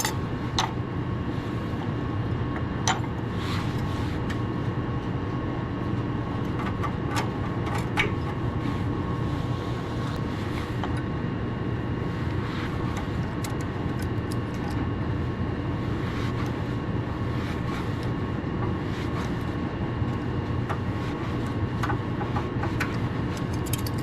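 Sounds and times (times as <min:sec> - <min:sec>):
machine hum with tones: 0:00.0 - 0:24.0
light clicks of parts handled: 0:22.7 - 0:24.0.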